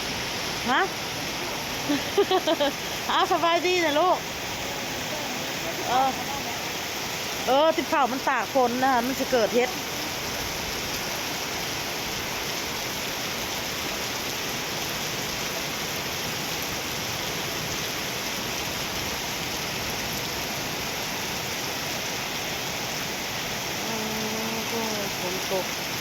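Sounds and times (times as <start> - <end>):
heavy rain pouring: 0.0 - 26.0
person's voice: 0.6 - 6.8, 7.5 - 9.8, 23.8 - 25.7.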